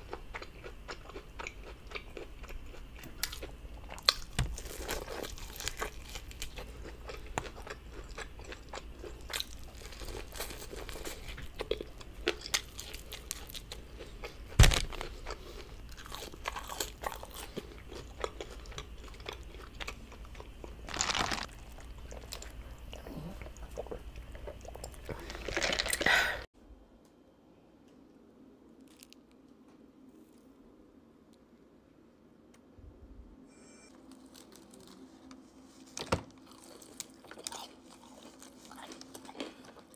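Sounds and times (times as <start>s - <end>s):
crunching fried chicken: 0.0s - 22.7s, 28.8s - 29.4s, 36.4s - 39.9s.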